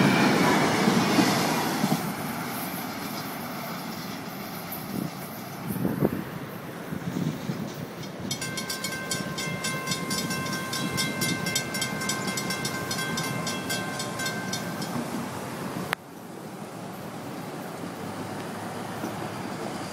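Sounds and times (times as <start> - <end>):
freight train cars rumbling: 0.0 - 19.9
high ringing wheel squeal: 8.1 - 15.1.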